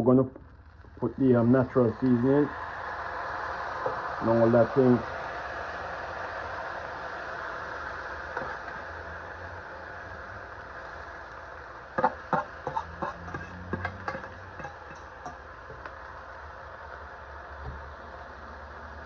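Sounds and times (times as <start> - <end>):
steady low hum: 0.0 - 19.0
utensils clicking against pot: 12.0 - 15.5.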